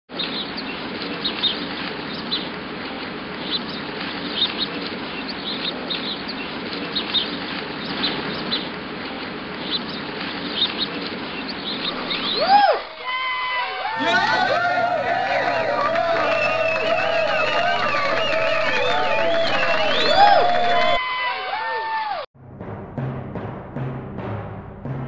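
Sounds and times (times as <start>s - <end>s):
small birds chirping: 0.1s - 12.4s.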